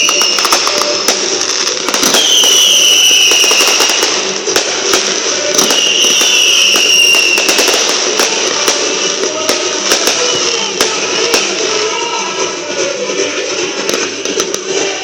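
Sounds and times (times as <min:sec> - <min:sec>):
firework falling whistles: 0:00.0 - 0:11.8
fireworks crackles and bangs: 0:00.0 - 0:15.0.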